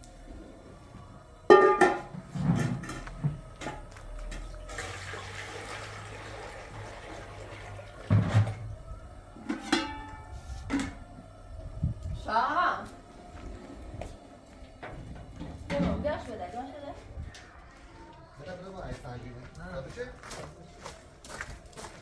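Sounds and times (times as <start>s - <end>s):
water running: 4.1s - 9.3s.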